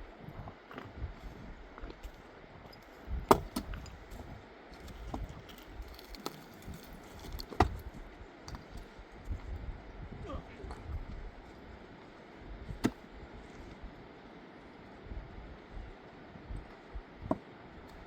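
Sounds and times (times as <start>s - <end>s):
clicks and knocks of hard objects: 5.1s - 7.8s.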